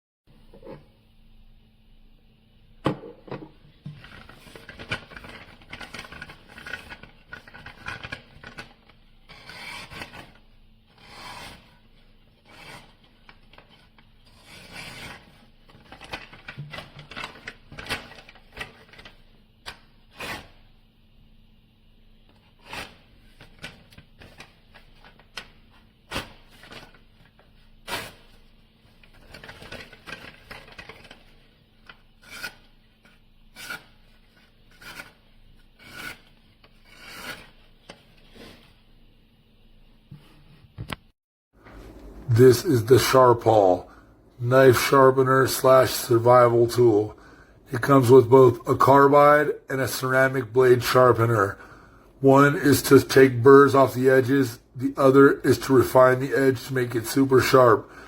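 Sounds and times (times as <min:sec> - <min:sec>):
knife rasping through sharpener: 0:35.8 - 0:36.3.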